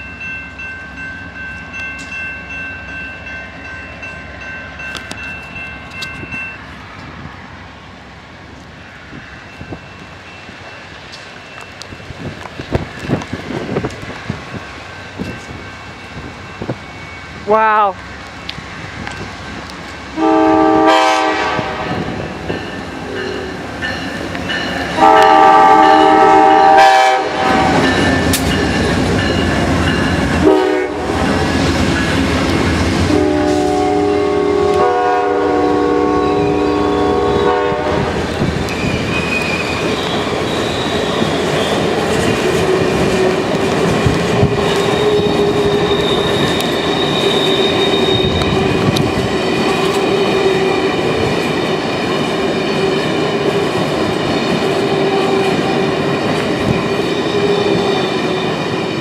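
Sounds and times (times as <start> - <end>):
train wheels clattering on rails: 9.2 - 17.2, 21.4 - 33.9, 37.9 - 59.0
locomotive horn blasts: 20.2 - 22.2, 25.0 - 27.9, 30.4 - 31.2, 33.1 - 38.2
faint wheel squeal: 44.8 - 48.6.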